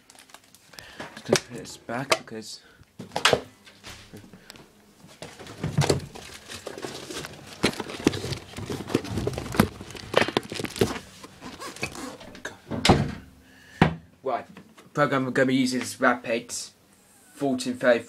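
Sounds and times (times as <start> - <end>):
rustling: 3.8 - 12.4.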